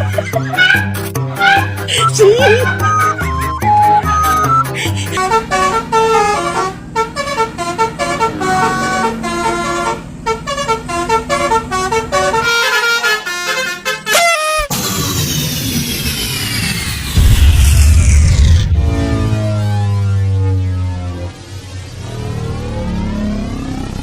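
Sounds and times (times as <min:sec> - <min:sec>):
bus horn playing melody: 0:00.0 - 0:14.7
hissing with falling tones: 0:14.7 - 0:20.4.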